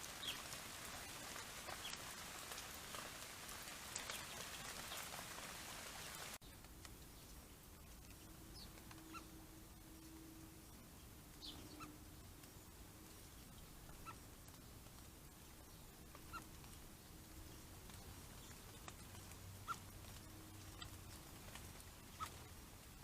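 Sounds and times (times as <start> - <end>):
faint bird chirps: 6.4 - 12.3.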